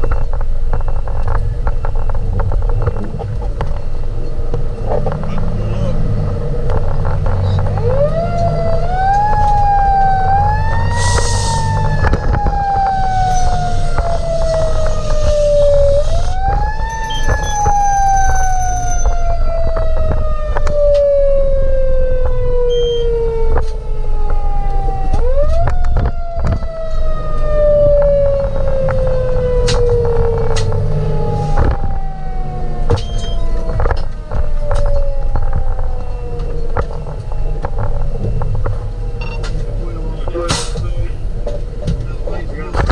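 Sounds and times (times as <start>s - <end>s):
truck engine rumble: 0.0s - 42.9s
fire engine siren wailing: 0.8s - 42.9s.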